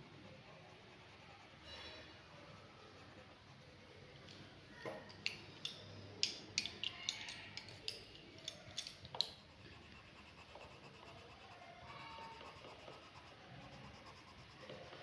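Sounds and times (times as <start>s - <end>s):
small hard objects clicking: 5.2s - 9.4s.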